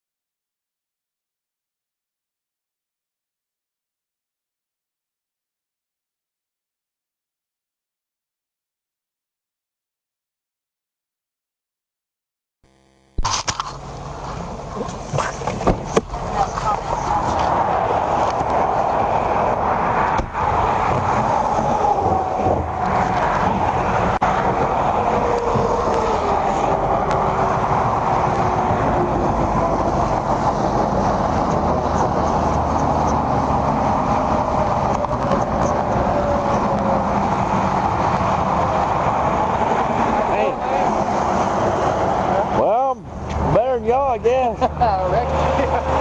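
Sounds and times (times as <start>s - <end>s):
car road and engine noise: 12.7s - 46.0s.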